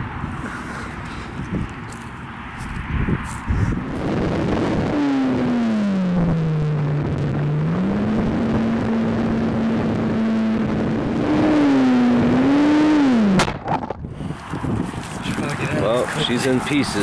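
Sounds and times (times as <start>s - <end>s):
wind rushing across microphone: 0.0s - 5.6s, 13.2s - 17.0s.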